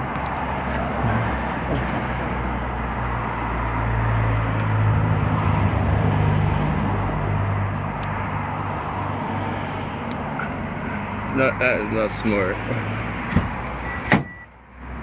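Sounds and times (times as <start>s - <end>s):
truck engine idling: 9.9s - 14.7s.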